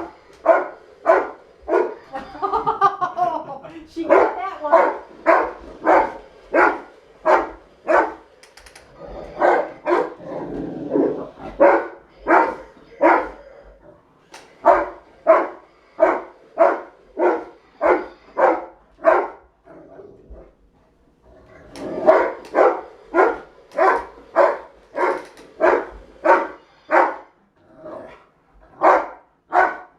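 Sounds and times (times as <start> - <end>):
dog barking excitedly: 0.4 - 2.0, 4.0 - 8.3, 9.3 - 10.2, 11.5 - 13.4, 14.6 - 19.5, 21.9 - 27.3, 28.7 - 29.9.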